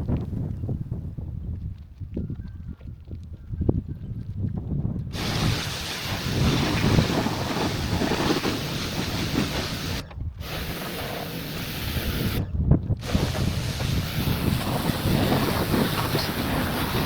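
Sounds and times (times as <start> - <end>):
water spraying against truck: 5.2 - 17.0.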